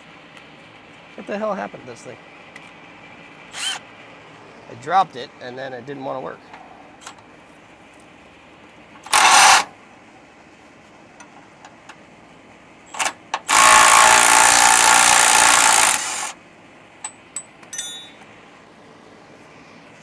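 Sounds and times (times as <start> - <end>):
power tool running in bursts: 3.5 - 3.8, 9.0 - 9.7, 13.0 - 16.4.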